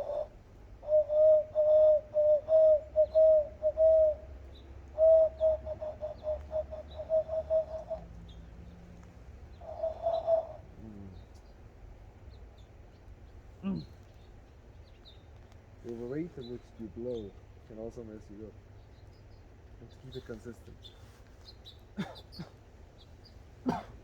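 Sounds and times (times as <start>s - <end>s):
hooting whistled bird call: 0.0s - 8.4s, 9.5s - 11.3s
faint bird chirps: 0.0s - 23.8s.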